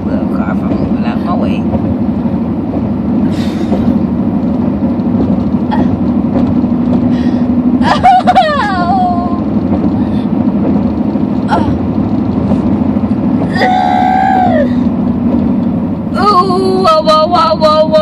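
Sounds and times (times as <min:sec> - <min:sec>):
car road and engine rumble: 0:00.0 - 0:18.0
woman moaning in pain: 0:05.7 - 0:06.0, 0:11.5 - 0:11.9, 0:13.5 - 0:14.9
woman crying: 0:07.8 - 0:09.4, 0:11.5 - 0:11.8, 0:13.5 - 0:14.8.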